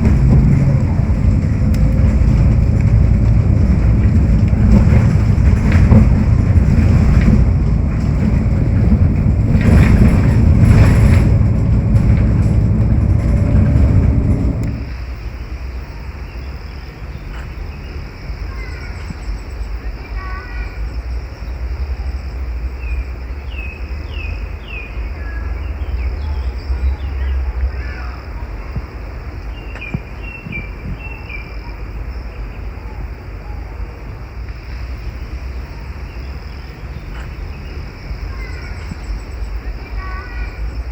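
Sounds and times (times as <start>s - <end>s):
low rumble: 0.0s - 15.4s
vehicle engine rumble: 0.0s - 40.9s.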